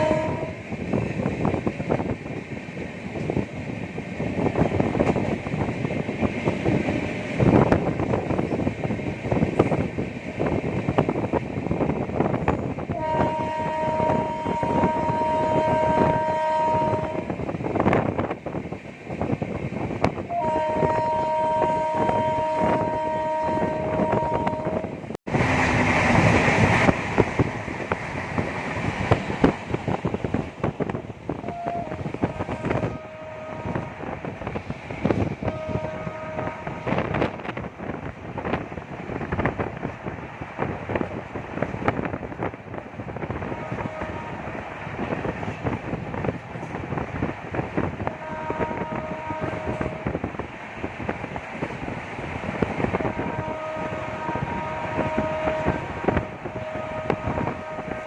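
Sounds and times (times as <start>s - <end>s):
two-tone locomotive horn: 0.0s - 0.7s, 12.8s - 17.4s, 20.1s - 25.1s, 31.3s - 34.5s, 35.1s - 37.9s, 43.3s - 45.2s, 47.9s - 50.2s, 52.8s - 58.0s
train rattling over rails: 0.0s - 58.0s.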